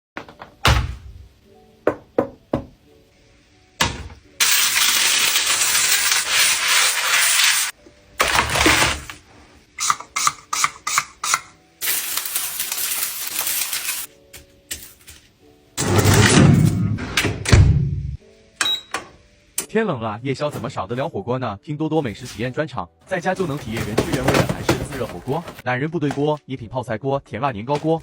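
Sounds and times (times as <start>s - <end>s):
faint background music: 0.2s - 28.0s
loud steady cooking hiss: 4.4s - 7.8s, 9.7s - 14.1s.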